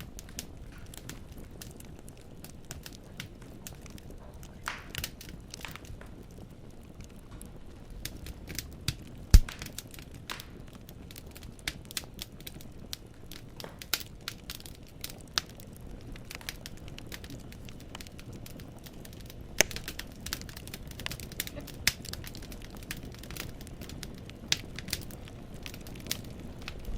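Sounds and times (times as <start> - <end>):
low rumble of flames: 0.0 - 26.9
wood fire crackling: 0.0 - 26.9
loud pop from fire: 4.2 - 6.2, 8.4 - 12.6, 19.6 - 26.9.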